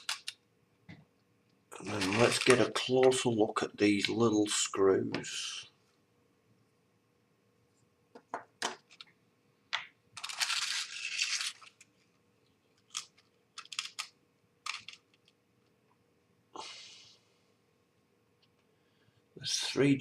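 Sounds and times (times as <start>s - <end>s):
plastic bag crinkling: 1.8s - 2.9s, 10.2s - 11.9s, 12.8s - 15.3s
tiny screws clicking: 12.9s - 15.3s.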